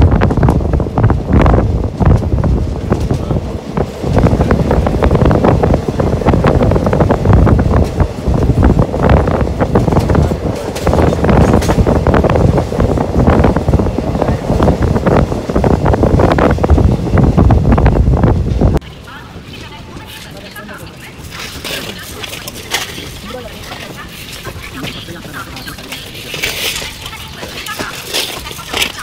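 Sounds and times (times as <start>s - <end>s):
passenger train rumbling: 0.0s - 29.0s
wind buffeting microphone: 0.0s - 29.0s
coaches rattling and clanking: 6.4s - 15.2s, 19.5s - 29.0s.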